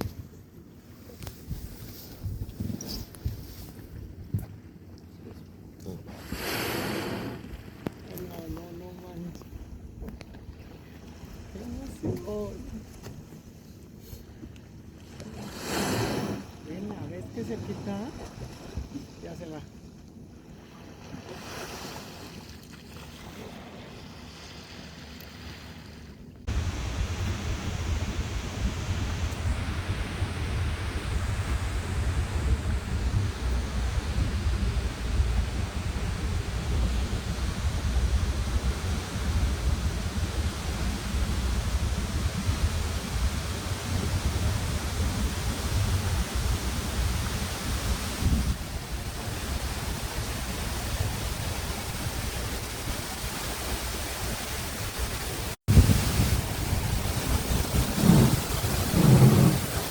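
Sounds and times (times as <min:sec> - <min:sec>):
wind over microphone: 0:00.0 - 0:05.3, 0:05.9 - 0:13.6, 0:15.4 - 0:19.6, 0:26.4 - 0:59.9
waves lapping: 0:03.0 - 0:59.9
low rumble: 0:26.5 - 0:49.3.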